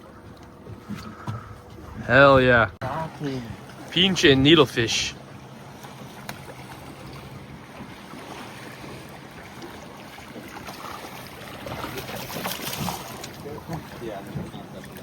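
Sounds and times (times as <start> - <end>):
boat engine hum: 0.0 - 15.0
water rushing: 1.8 - 15.0.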